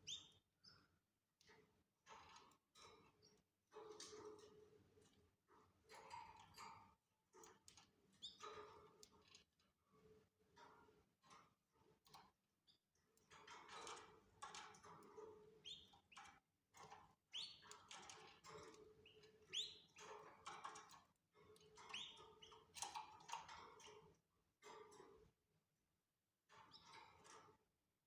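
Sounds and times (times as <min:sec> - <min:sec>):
canaries chirping: 0:00.0 - 0:00.4, 0:15.6 - 0:16.4, 0:17.3 - 0:21.0, 0:21.6 - 0:24.0.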